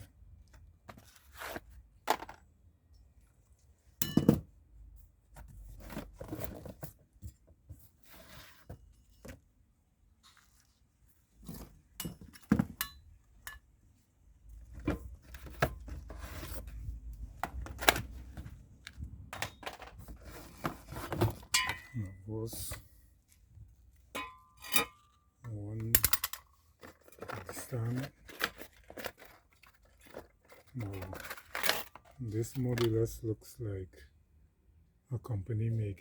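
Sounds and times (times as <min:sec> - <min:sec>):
packaging rustling and scraping: 0:00.5 - 0:02.4, 0:05.4 - 0:07.2, 0:07.8 - 0:09.5, 0:14.5 - 0:23.5, 0:25.7 - 0:33.0
metal knocks and clinks: 0:21.5 - 0:22.0, 0:24.2 - 0:25.1.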